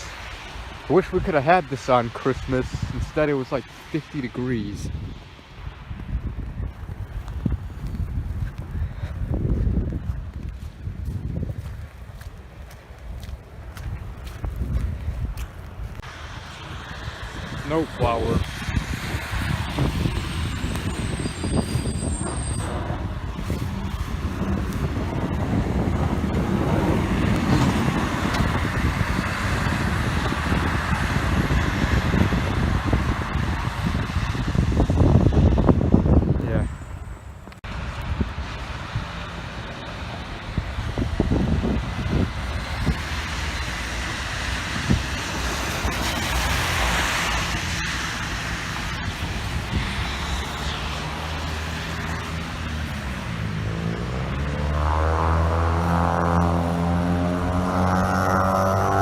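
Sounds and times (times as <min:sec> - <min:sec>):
road noise: 0:00.0 - 0:59.0
truck engine rumble: 0:06.0 - 0:59.0.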